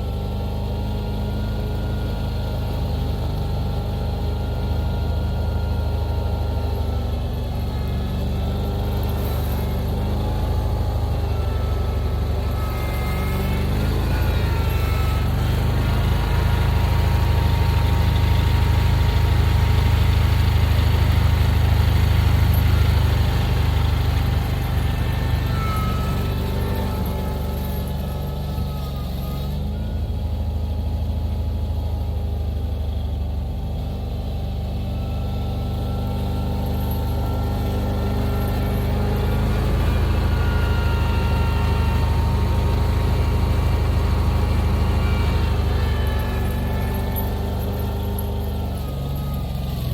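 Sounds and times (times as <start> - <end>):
engine running steadily: 0.0 - 49.9.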